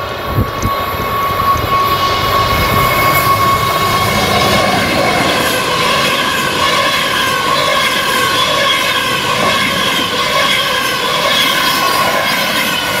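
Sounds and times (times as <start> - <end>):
high-speed train passing: 0.0 - 13.0
train traction drive whine: 0.0 - 13.0.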